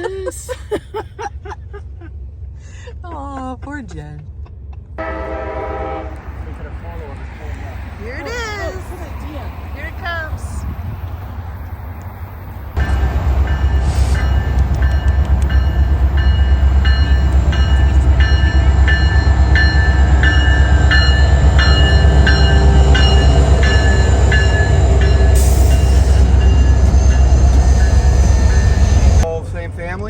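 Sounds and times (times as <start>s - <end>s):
diesel locomotive rumbling: 0.0s - 30.0s
train bell ringing: 12.8s - 29.2s.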